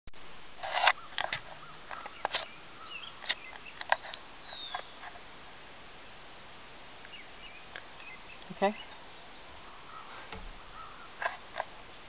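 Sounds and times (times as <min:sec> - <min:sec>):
faint bird chirps: 0:00.8 - 0:05.2, 0:07.0 - 0:11.3.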